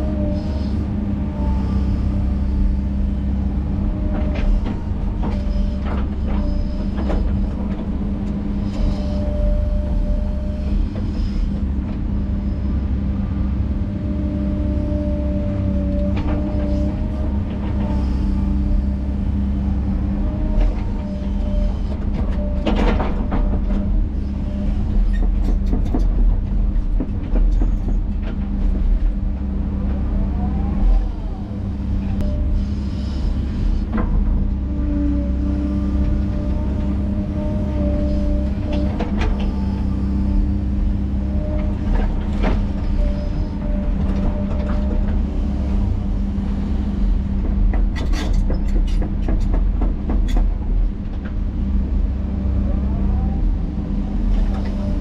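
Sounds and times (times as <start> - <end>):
earthmoving machine engine drone: 0.0 - 55.0
tracks clanking and squealing: 3.7 - 12.0, 20.1 - 29.2, 29.8 - 46.2, 46.9 - 51.4.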